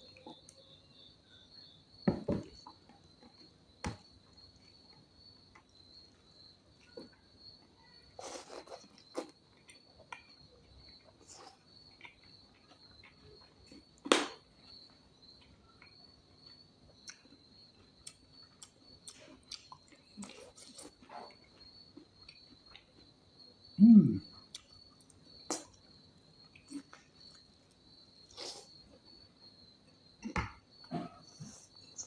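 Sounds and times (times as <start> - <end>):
insects chirring: 0.0 - 32.0
person chewing: 8.2 - 10.4, 11.0 - 13.8, 18.0 - 21.4, 26.5 - 28.9.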